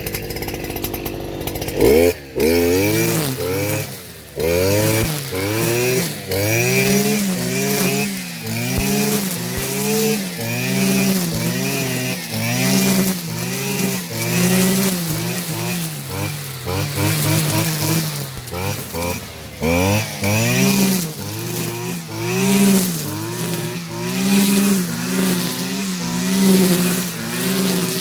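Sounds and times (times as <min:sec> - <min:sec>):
small petrol engine: 0:00.0 - 0:28.0.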